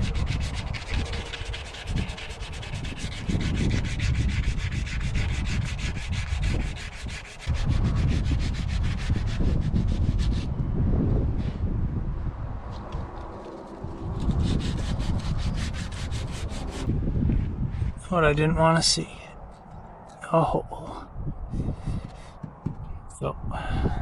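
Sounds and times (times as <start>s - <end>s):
rust being scraped off steel: 0.0s - 10.5s, 13.2s - 16.9s
wind rumbling on microphone: 0.0s - 24.0s.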